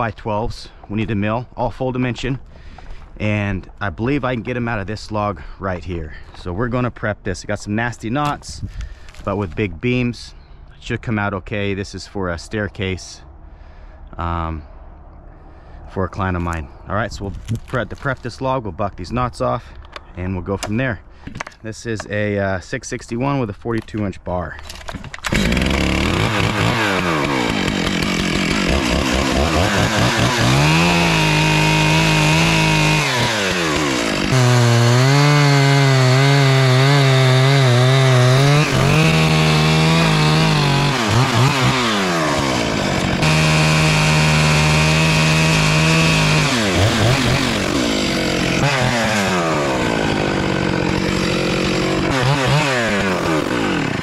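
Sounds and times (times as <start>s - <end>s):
chainsaw revving and idling: 25.2s - 54.0s.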